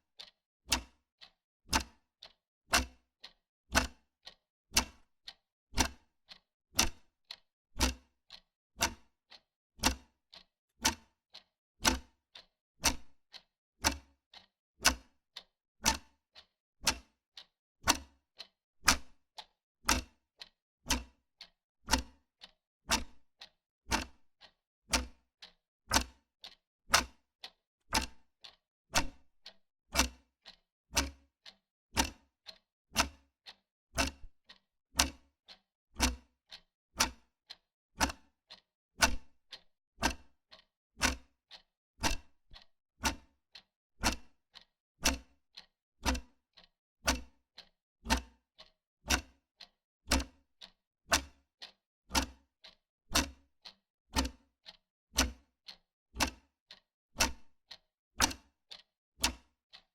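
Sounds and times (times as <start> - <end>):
wall clock ticking: 0.2 - 1.0, 1.7 - 2.9, 3.8 - 5.0, 12.8 - 15.1, 16.8 - 17.1, 21.9 - 27.2, 28.0 - 43.3, 50.1 - 52.8, 56.2 - 59.8.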